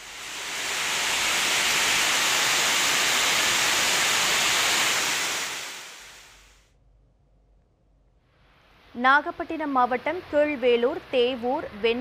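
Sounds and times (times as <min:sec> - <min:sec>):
heavy rain pouring: 0:00.0 - 0:06.4.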